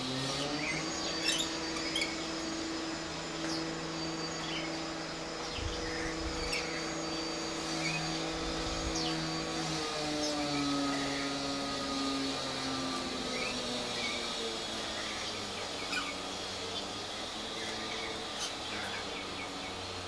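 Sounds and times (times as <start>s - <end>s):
machine humming: 0.0s - 20.0s
small birds chirping: 0.0s - 20.0s.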